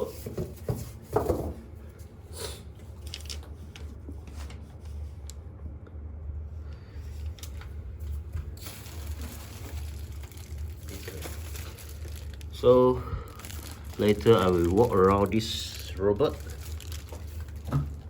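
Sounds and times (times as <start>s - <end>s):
steady low hum: 0.0s - 18.0s
packaging rustling and crinkling: 2.8s - 5.0s, 7.2s - 18.0s.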